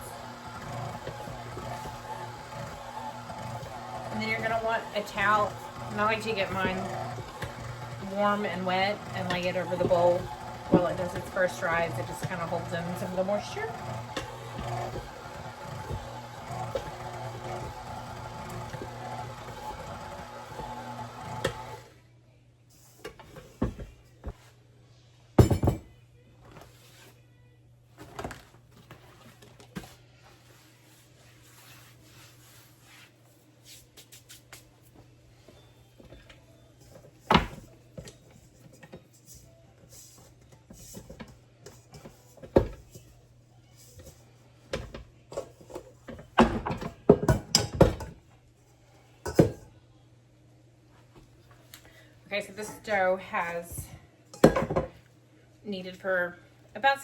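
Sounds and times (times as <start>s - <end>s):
stand mixer motor humming: 0.0s - 21.9s.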